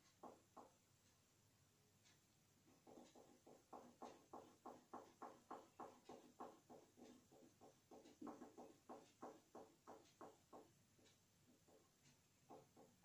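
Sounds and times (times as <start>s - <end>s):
crayon colouring strokes: 2.7s - 10.4s.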